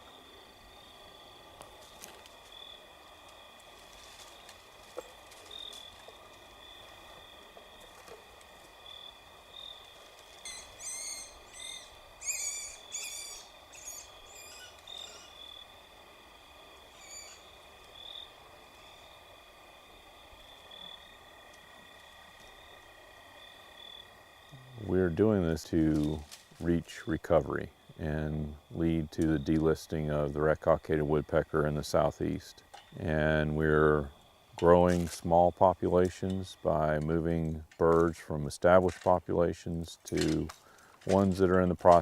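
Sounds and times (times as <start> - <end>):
insects and frogs trilling: 0.0 - 42.0
bird harsh repeated calls: 10.4 - 15.4, 17.0 - 17.5.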